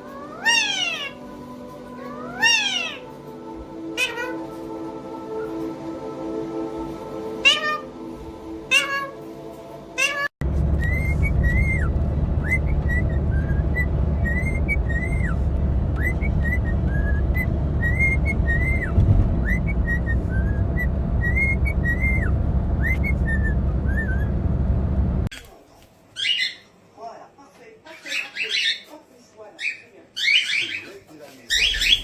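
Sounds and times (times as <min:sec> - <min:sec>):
parrot whistling chirping notes: 0:02.0 - 0:03.0, 0:10.0 - 0:24.4, 0:31.5 - 0:32.0
loud low rumble: 0:10.4 - 0:25.3.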